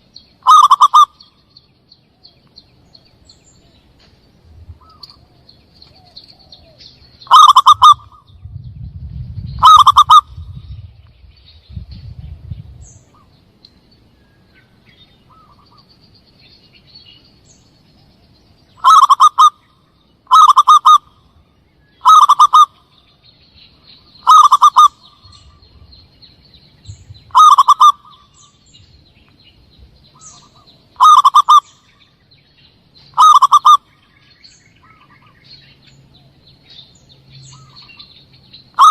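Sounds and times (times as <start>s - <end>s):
dove cooing calls: 0.0s - 1.3s, 4.6s - 8.6s, 9.3s - 10.8s, 18.8s - 19.6s, 20.2s - 21.3s, 22.0s - 23.0s, 24.1s - 25.9s, 27.3s - 28.6s, 30.1s - 32.1s, 33.1s - 33.9s, 37.4s - 38.9s
low rumble: 8.0s - 13.4s.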